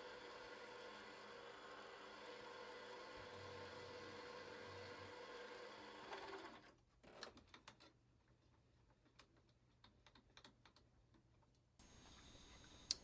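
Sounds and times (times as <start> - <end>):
faint machine hum: 11.8 - 13.0.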